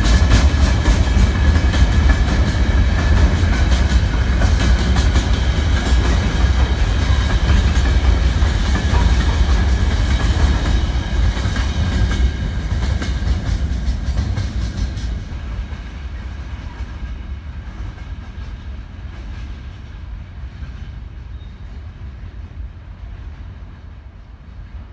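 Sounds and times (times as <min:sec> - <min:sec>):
freight train wheels clattering: 0:00.0 - 0:24.0.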